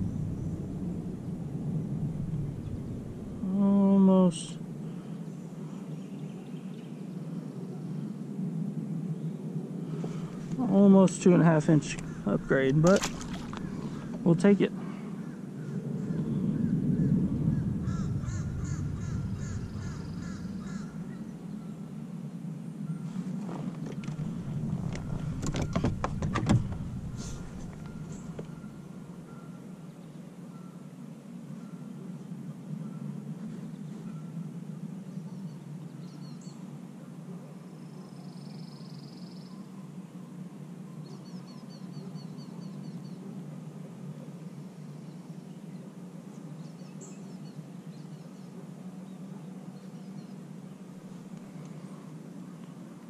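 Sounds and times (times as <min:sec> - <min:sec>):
steady low rumble: 0:00.0 - 0:30.0
birds singing: 0:10.1 - 0:22.0, 0:23.8 - 0:30.7, 0:41.0 - 0:43.4, 0:44.6 - 0:52.7.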